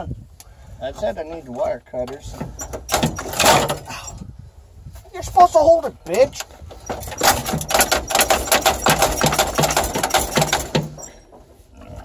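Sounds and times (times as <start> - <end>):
rapid mechanical clattering: 2.5 - 3.9, 6.8 - 11.2.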